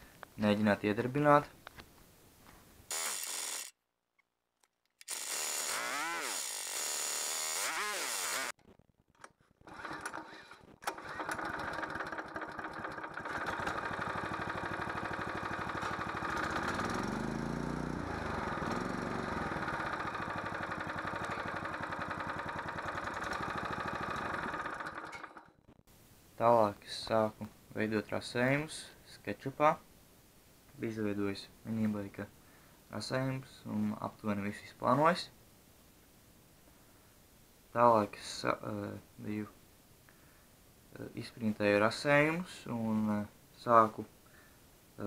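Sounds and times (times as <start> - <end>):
go-kart engine cranking and running: 2.9 - 3.8, 5.0 - 8.5, 9.6 - 25.6.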